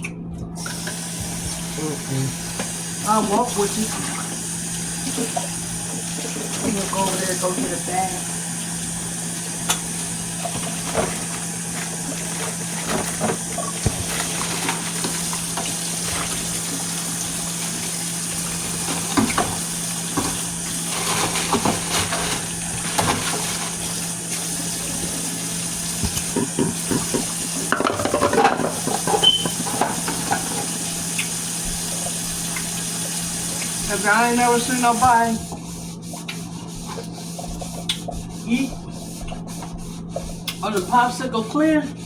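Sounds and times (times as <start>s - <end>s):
dishes knocking and clattering: 26.0s - 30.8s.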